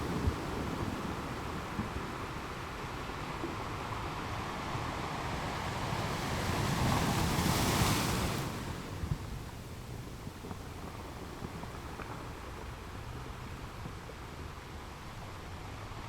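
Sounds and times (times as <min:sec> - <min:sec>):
waves breaking on rocks: 0:00.0 - 0:12.3
small water splashes: 0:07.1 - 0:12.6.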